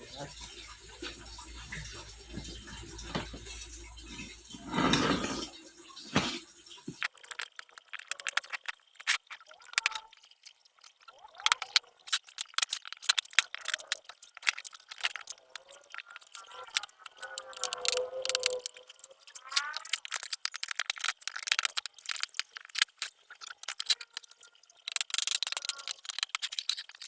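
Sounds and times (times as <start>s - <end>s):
plastic and cardboard crinkling: 6.2s - 27.0s
packaging rustling: 11.7s - 27.0s.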